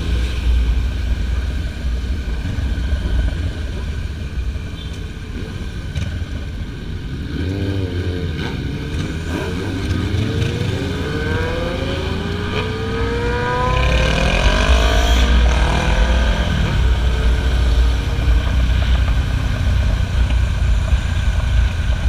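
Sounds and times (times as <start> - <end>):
wind and road noise: 0.0 - 22.0
motorcycle engine accelerating: 7.2 - 22.0.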